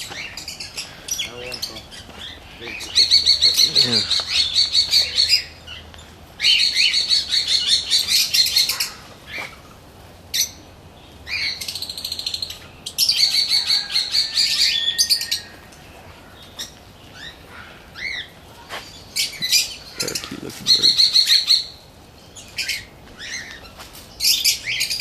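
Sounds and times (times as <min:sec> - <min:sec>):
parakeets chattering: 0:00.0 - 0:25.0.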